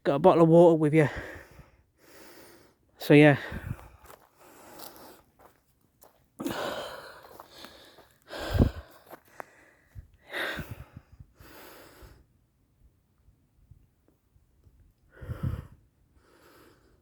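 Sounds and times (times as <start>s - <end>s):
man breathing heavily: 1.1s - 5.6s, 6.4s - 12.4s, 15.1s - 17.0s.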